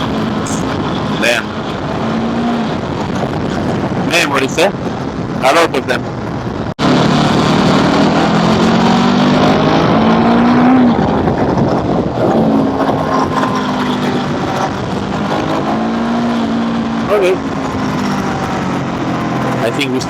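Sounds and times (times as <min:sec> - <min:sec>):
wind and road noise: 0:00.0 - 0:20.0
scooter engine accelerating: 0:06.7 - 0:20.0.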